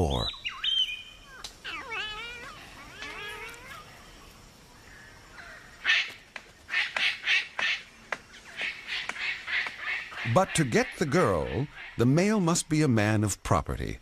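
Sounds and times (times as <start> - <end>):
wavering whistled bird call: 0.2 - 1.4.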